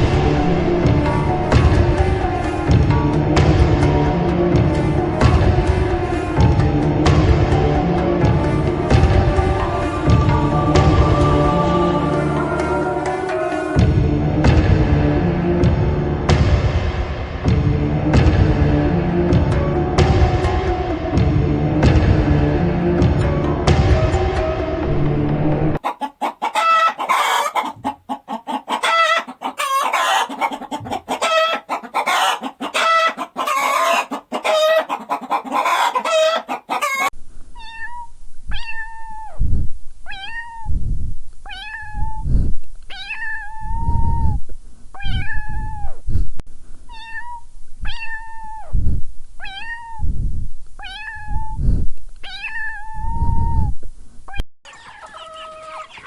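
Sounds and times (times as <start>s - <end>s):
kitten meowing: 36.8s - 39.4s, 40.1s - 40.7s, 41.5s - 42.2s, 42.9s - 44.3s, 45.0s - 46.0s, 46.9s - 48.7s, 49.4s - 50.1s, 50.8s - 51.6s, 52.2s - 53.6s, 54.3s - 55.8s.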